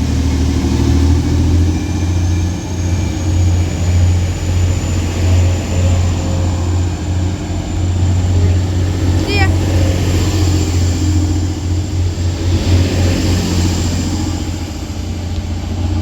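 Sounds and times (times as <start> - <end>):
diesel train engines droning: 0.0 - 16.0.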